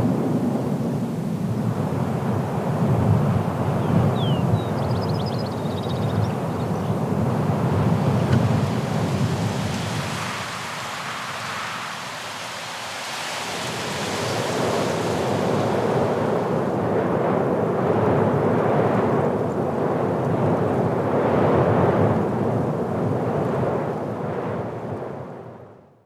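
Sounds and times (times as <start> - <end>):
blizzard wind gusting: 0.0 - 25.8.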